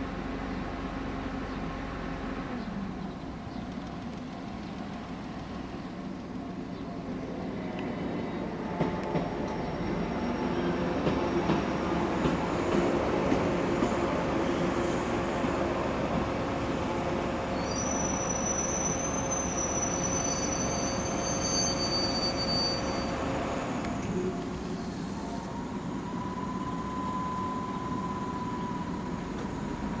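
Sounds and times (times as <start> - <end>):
train wheels rumbling on rail: 0.0 - 30.0
high-pitched wheel squeal: 17.6 - 23.5.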